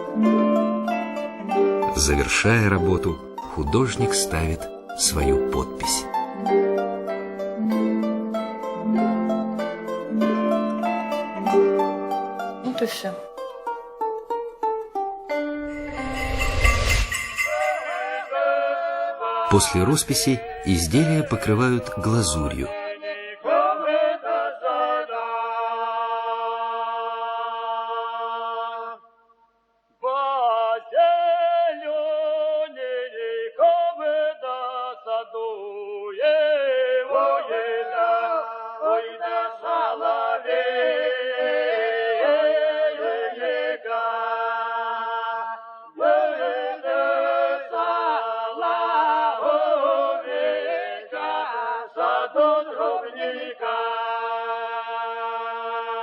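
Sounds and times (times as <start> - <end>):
unaccompanied singing voices: 17.7 - 29.0, 30.0 - 56.0.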